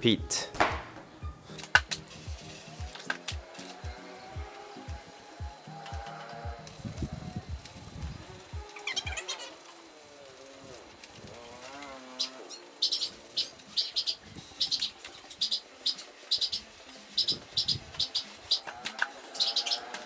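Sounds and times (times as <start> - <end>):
small bird chirping: 6.9 - 9.7, 11.7 - 20.0.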